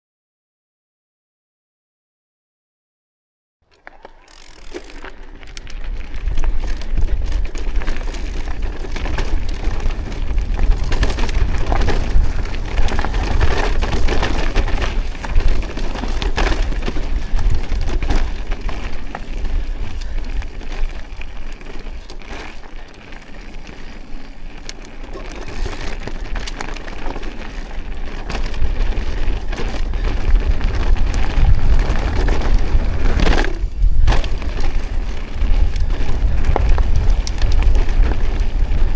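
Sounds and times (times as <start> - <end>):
bike rattling: 3.7 - 38.9
tyres crackling over gravel: 3.7 - 38.9
wind rumble on microphone: 5.4 - 22.4, 25.4 - 38.9.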